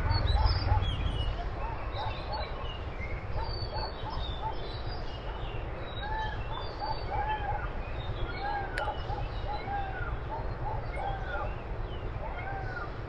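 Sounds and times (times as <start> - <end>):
steady low rumble: 0.0 - 4.4
birds chirping: 0.0 - 13.0.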